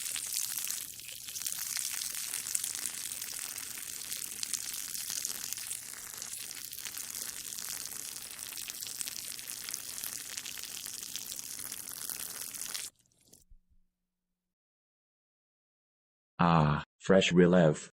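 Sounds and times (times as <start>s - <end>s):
person peeing: 0.0s - 12.9s.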